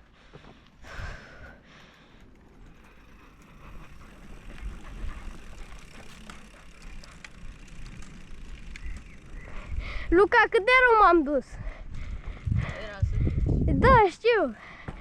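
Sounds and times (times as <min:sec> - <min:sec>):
bicycle clicks and rattles: 0:00.2 - 0:10.1
wind rumble on microphone: 0:11.5 - 0:14.2.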